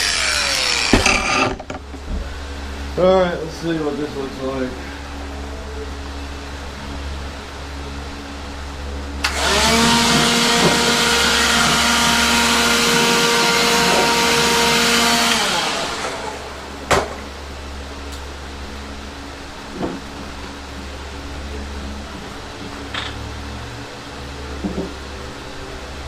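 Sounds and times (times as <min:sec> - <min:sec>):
power tool motor running: 0:00.0 - 0:01.8, 0:09.2 - 0:16.8.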